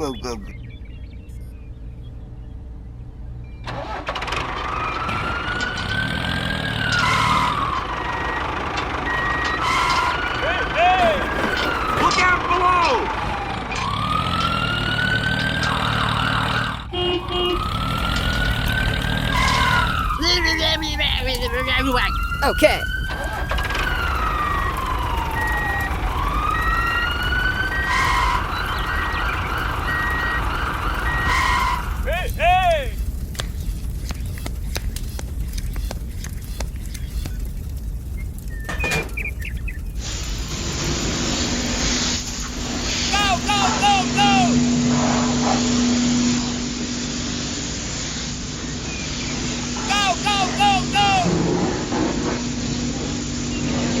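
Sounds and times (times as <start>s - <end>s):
small vehicle motor whining: 3.6s - 32.2s
siren wail: 3.7s - 33.2s, 41.6s - 47.6s, 48.3s - 54.0s
hissing burst: 10.9s - 12.4s, 22.5s - 54.0s.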